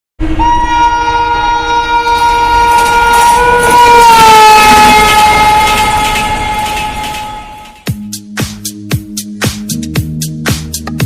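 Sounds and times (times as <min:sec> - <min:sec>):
train horn blast: 0:00.2 - 0:07.9
train running rumble: 0:00.2 - 0:08.0.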